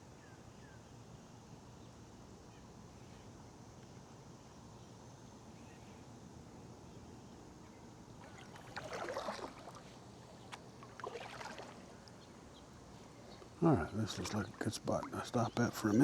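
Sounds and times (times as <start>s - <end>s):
kayak paddle splashing: 8.2s - 16.0s
water dripping: 10.5s - 12.2s.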